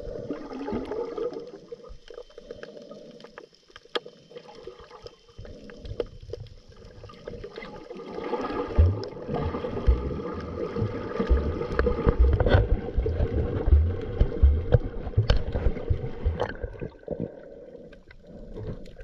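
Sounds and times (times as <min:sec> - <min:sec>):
scuba bubbles gurgling underwater: 0:00.0 - 0:19.0
faint clicks: 0:01.4 - 0:06.6.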